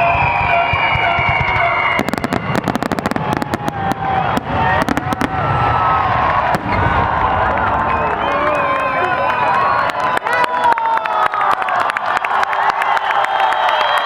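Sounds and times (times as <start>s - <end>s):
firework whistle: 0.0s - 10.1s
sharp firework bangs: 0.7s - 7.4s.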